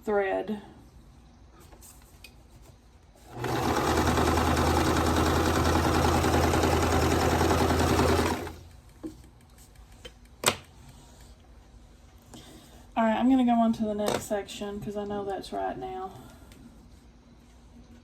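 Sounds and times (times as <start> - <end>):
sewing machine stitching: 3.3 - 8.6.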